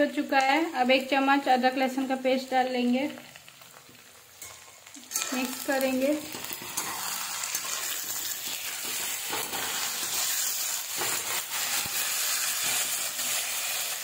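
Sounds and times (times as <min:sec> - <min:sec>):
onions sizzling in hot oil: 0:00.0 - 0:14.0
spatula scraping pan: 0:06.2 - 0:13.9.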